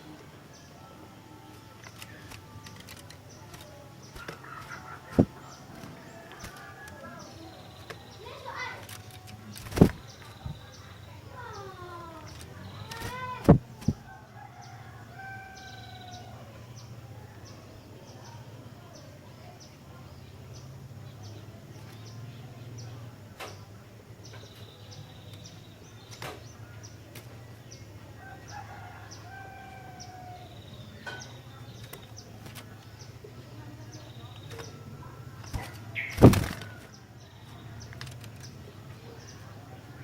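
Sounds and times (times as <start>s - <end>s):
sharp clicks: 1.8s - 6.6s, 35.4s - 36.9s, 37.8s - 38.6s
distant rooster crowing: 4.1s - 8.7s, 12.6s - 16.8s, 28.0s - 31.3s.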